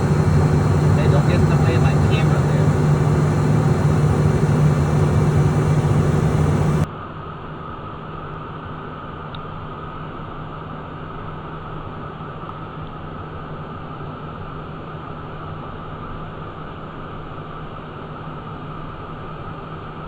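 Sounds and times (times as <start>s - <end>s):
airflow rush over aircraft: 0.0s - 6.9s
constant low hum: 0.0s - 6.9s
jet engine whine: 0.0s - 6.9s.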